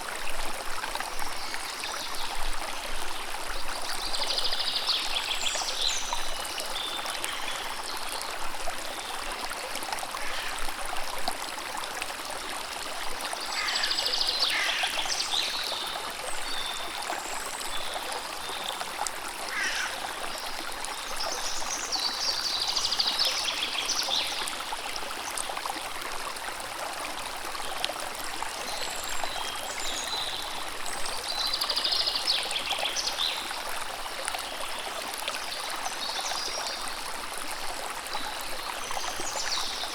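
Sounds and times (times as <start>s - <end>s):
stream splashing and gurgling: 0.0s - 39.9s.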